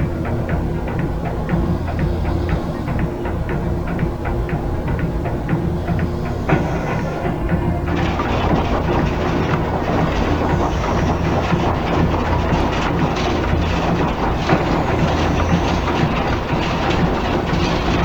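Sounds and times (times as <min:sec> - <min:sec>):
low drone: 0:00.0 - 0:18.0
loud rumbling clattering: 0:06.5 - 0:18.0.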